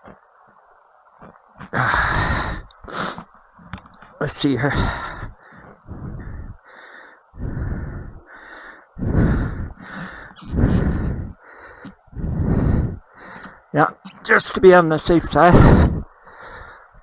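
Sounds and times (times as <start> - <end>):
heavy rapid breathing: 4.6 - 13.7.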